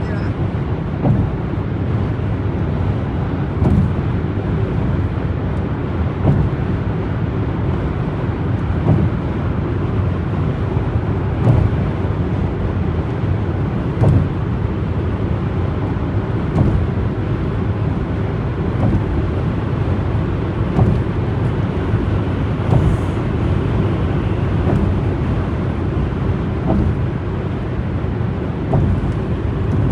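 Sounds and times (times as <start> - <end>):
road and tyre rumble: 0.0 - 29.9
light thump: 1.0 - 1.5, 3.6 - 4.1, 6.2 - 6.8, 8.6 - 9.4, 11.4 - 11.9, 14.0 - 14.5, 16.5 - 17.0, 18.8 - 19.4, 20.7 - 21.3, 22.6 - 23.3, 24.6 - 25.2, 26.6 - 27.2, 28.6 - 29.9.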